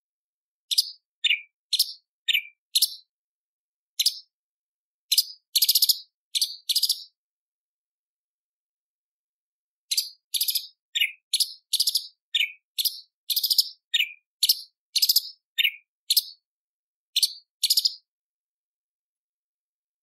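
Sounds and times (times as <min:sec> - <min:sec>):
leafbird singing high chirps: 0:00.7 - 0:03.1, 0:03.9 - 0:04.4, 0:05.1 - 0:07.2, 0:09.9 - 0:16.5, 0:17.1 - 0:18.1.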